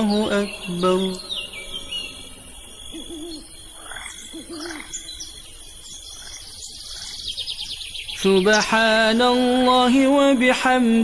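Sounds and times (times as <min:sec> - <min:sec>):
low hooting bird calls: 0:00.0 - 0:08.8
high insect drone: 0:00.0 - 0:08.9.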